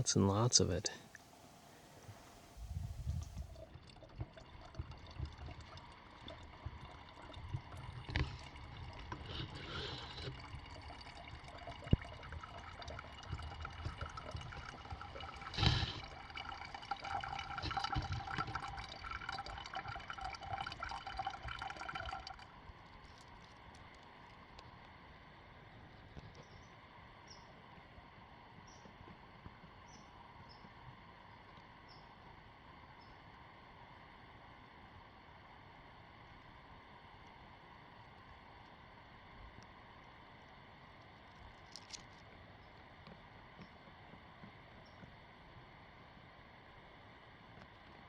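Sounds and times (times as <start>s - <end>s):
lake water lapping: 0.0s - 23.7s.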